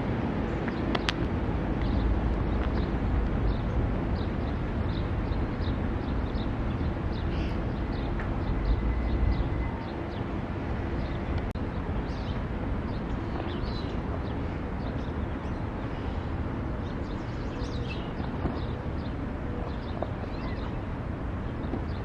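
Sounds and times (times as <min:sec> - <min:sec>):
passenger train rumbling past: 0:00.0 - 0:17.6
bird chirping: 0:11.9 - 0:22.0.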